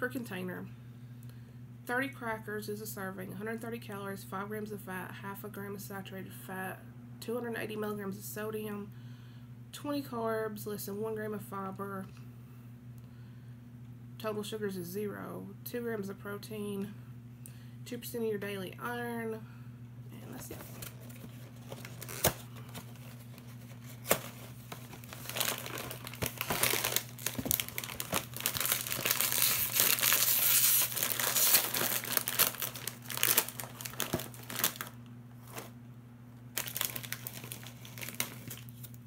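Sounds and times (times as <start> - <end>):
wrapper crinkling and tearing: 20.5 - 35.7, 36.5 - 39.0.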